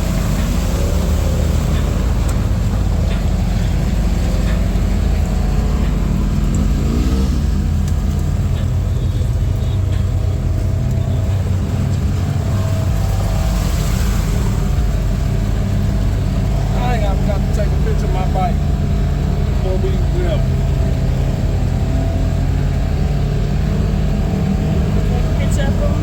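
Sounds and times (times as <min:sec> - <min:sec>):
atv engine running: 0:00.0 - 0:26.0.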